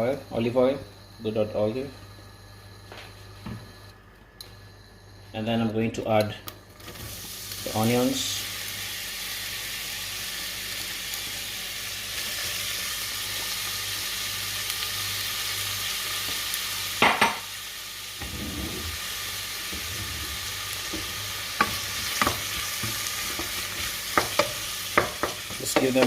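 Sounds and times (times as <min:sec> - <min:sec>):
onions sizzling in oil: 0:06.7 - 0:26.0
knocks on a pot: 0:17.0 - 0:17.4.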